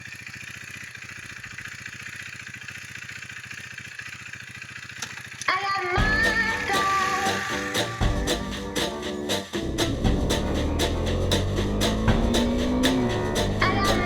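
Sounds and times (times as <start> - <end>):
motorcycle engine idling: 0.0 - 14.0
music: 6.0 - 14.0.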